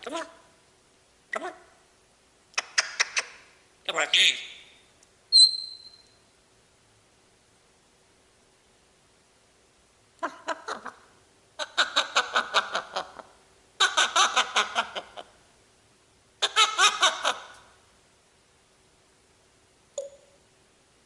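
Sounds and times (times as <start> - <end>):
parrot cackling: 10.2 - 15.4, 16.4 - 17.7.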